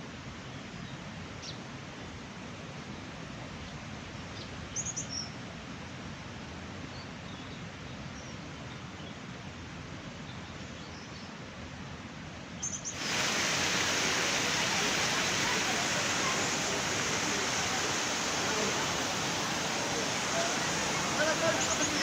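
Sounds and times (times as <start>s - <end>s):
outdoor background rush: 11.3s - 22.0s
small birds chirping: 12.6s - 22.0s.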